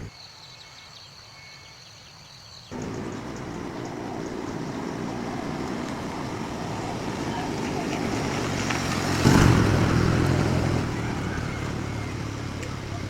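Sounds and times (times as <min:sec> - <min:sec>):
motor engine running: 0:02.8 - 0:13.0.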